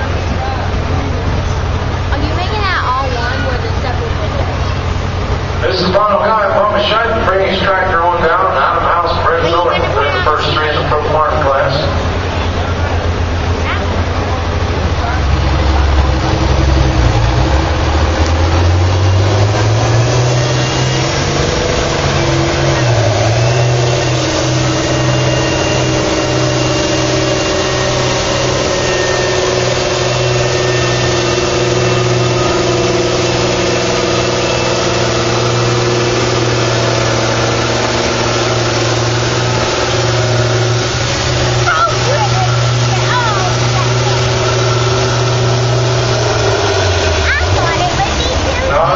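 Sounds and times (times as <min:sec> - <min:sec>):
tractor diesel engine under load: 0:00.0 - 0:48.9.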